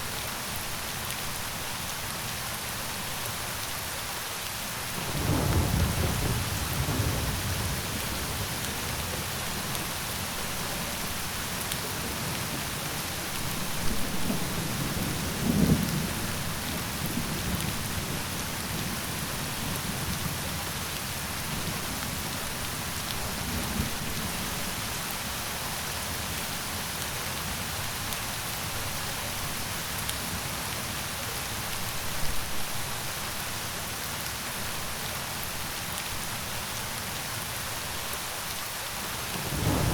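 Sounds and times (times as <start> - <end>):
rain pattering: 0.0 - 39.9
distant thunder rolling: 39.3 - 39.9.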